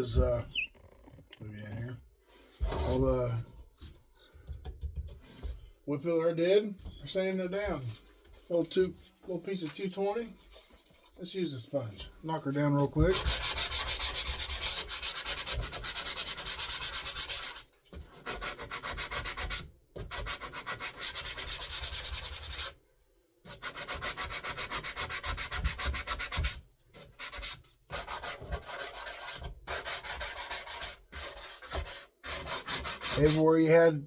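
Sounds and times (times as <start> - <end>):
sandpaper scratching on wood filler: 13.0 - 22.8, 23.5 - 33.8.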